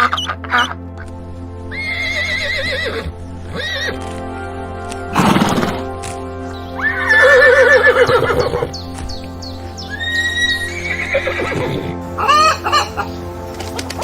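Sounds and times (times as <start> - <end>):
background music: 0.0 - 14.0
horse whinnying: 1.7 - 4.0, 5.1 - 5.8, 6.8 - 8.8, 9.9 - 13.2.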